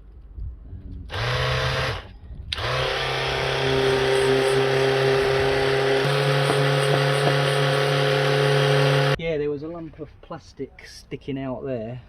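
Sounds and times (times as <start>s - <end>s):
electric sander running: 1.1s - 9.2s
sanding metal bodywork: 3.3s - 9.2s.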